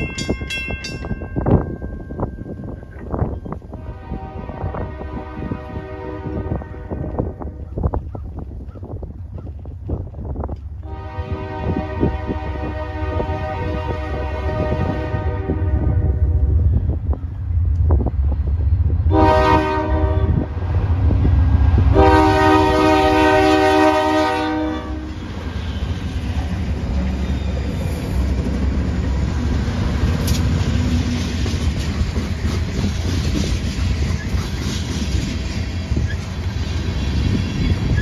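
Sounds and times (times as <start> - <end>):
train cars clattering on rails: 0.0 - 3.8, 25.1 - 38.0
locomotive engines rumbling: 0.0 - 38.0
train horn blasts: 3.7 - 7.6, 10.8 - 16.7, 19.1 - 20.5, 21.9 - 25.9.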